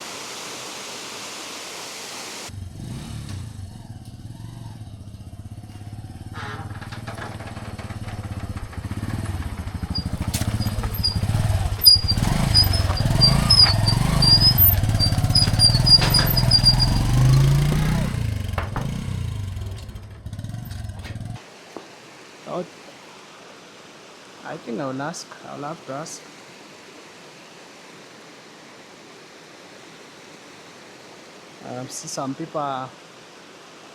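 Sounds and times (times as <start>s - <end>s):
steady hiss: 0.0s - 2.5s, 21.4s - 33.9s
engine rumbling: 2.5s - 21.4s.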